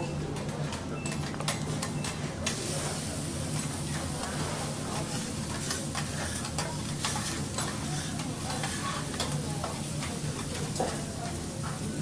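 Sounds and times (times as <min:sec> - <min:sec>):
food sizzling on hot plate: 0:02.5 - 0:12.0
metal spatulas scraping griddle: 0:04.4 - 0:09.3.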